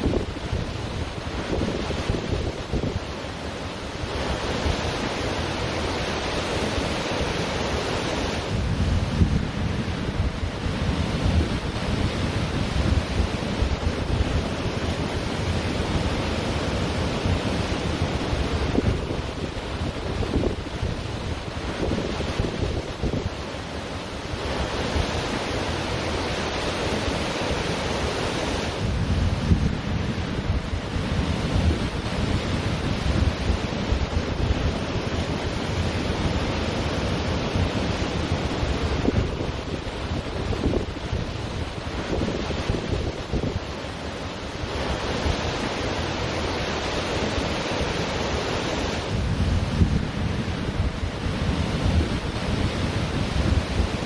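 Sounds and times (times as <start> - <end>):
wind buffeting microphone: 0.0 - 3.2, 8.2 - 23.5, 28.0 - 54.0
ocean surf washing onto beach: 0.0 - 54.0.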